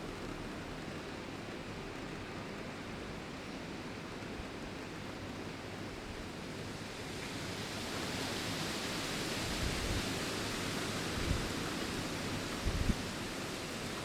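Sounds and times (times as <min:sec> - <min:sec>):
wind rustling leaves: 0:04.2 - 0:14.0.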